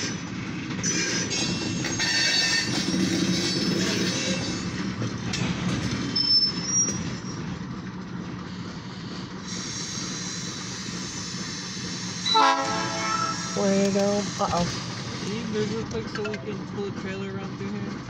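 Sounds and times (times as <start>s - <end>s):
freight cars rumbling and clattering: 0.0s - 18.0s
high-pitched wheel squeal: 6.0s - 7.4s, 10.0s - 13.8s.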